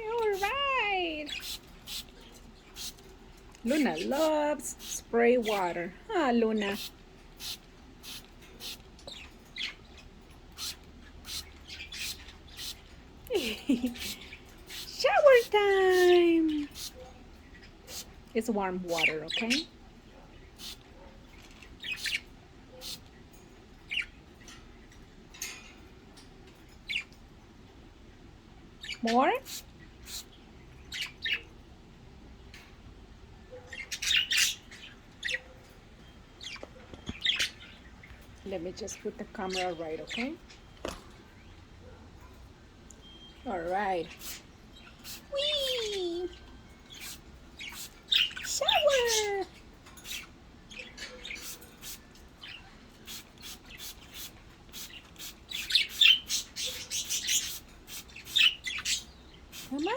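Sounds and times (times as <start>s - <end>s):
budgerigar chirping and squawking: 0.2s - 3.0s, 6.6s - 9.9s, 10.5s - 13.0s, 13.8s - 15.7s, 20.6s - 20.9s, 21.8s - 23.0s, 33.5s - 35.6s, 46.9s - 59.9s.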